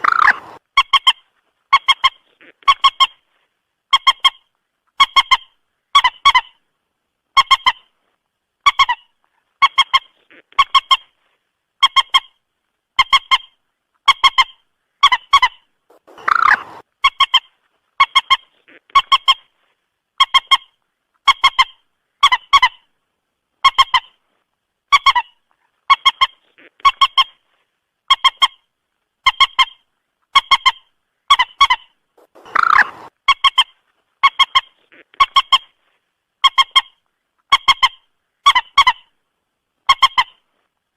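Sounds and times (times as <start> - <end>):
moorhen calls: 0.0 - 3.2, 14.1 - 19.5, 30.4 - 35.8.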